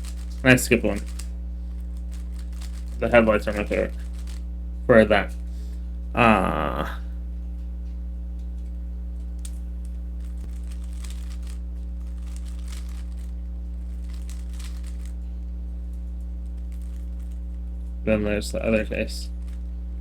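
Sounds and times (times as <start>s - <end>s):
plastic cube clicking and scraping: 0.0s - 4.4s, 10.2s - 15.2s
low electrical hum: 0.0s - 20.0s.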